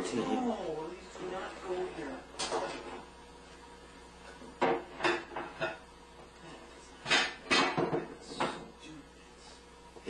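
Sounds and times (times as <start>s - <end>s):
dishes clattering: 4.4s - 5.9s, 7.0s - 8.7s.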